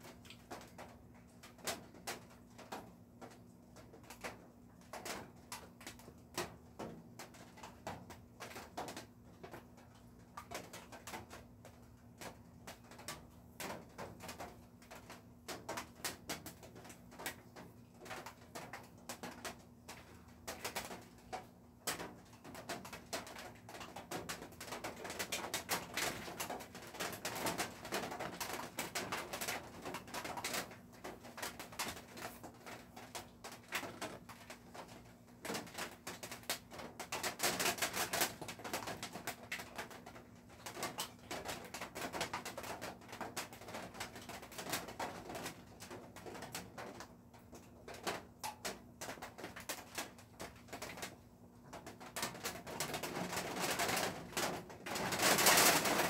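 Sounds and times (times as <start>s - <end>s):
pet birds clicking and scratching: 0.0s - 56.0s.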